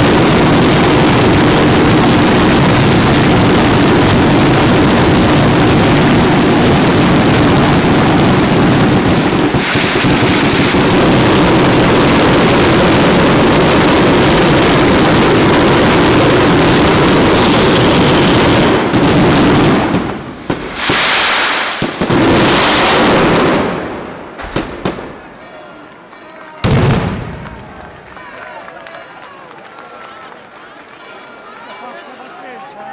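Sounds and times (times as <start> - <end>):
fireworks explosions: 0.0 - 29.0.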